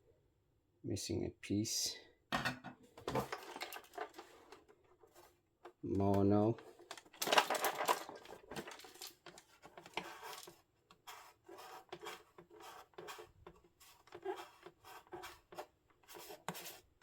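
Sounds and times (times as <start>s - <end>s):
handling noise of radio cassette player: 6.8s - 9.2s.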